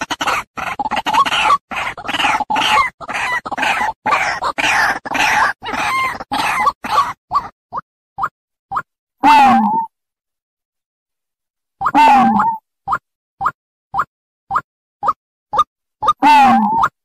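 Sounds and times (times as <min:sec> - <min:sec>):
bird harsh croaking calls: 0:00.0 - 0:07.5.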